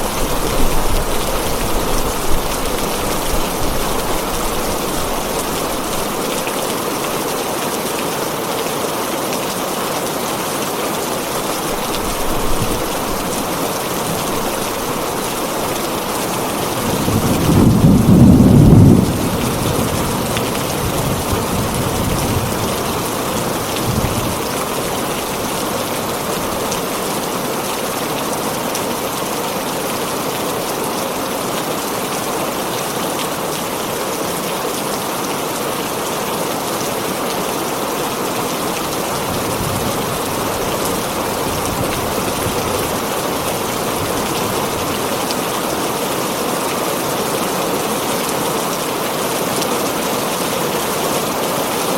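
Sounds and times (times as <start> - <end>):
thunder rumble: 0.0 - 6.2, 14.0 - 24.5
heavy rain on a tin roof: 0.0 - 51.9.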